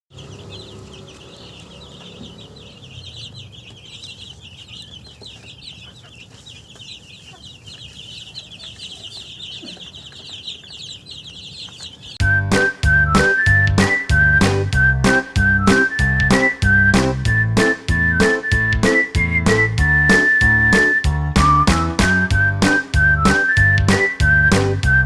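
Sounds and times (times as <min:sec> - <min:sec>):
chicks peeping: 0:00.1 - 0:24.7
music with whistled tune: 0:12.2 - 0:25.0.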